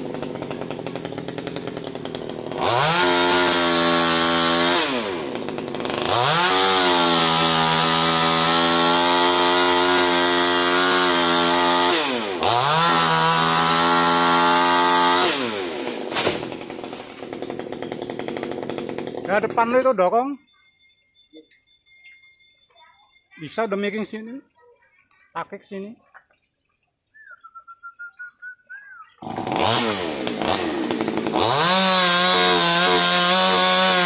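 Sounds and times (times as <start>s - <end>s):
chainsaw revving and idling: 0.0s - 20.0s, 29.2s - 34.0s.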